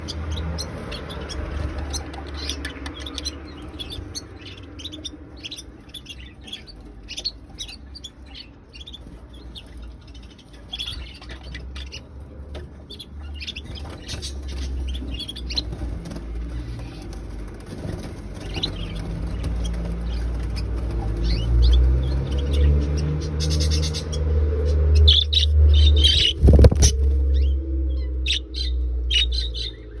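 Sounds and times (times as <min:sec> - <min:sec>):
budgerigars chirping: 0:00.0 - 0:30.0
low rumble: 0:15.6 - 0:30.0.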